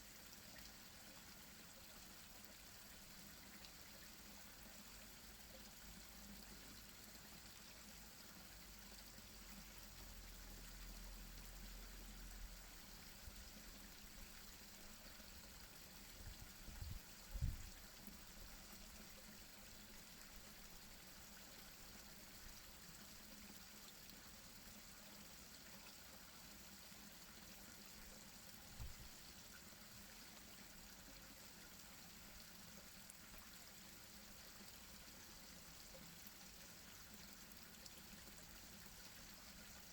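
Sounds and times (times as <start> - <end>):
small waterfall trickling: 0.0 - 39.9.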